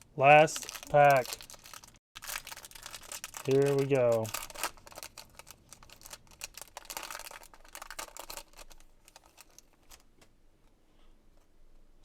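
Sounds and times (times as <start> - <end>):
wrapper crinkling: 0.5 - 10.1
cards clicking and rustling: 0.6 - 1.9, 2.9 - 10.1.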